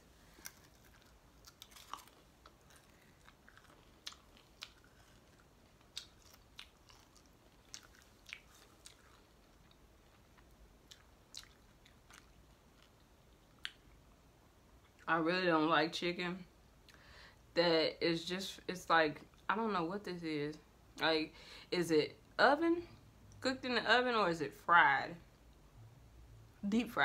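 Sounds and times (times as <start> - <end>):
person chewing food: 0.1 - 15.0.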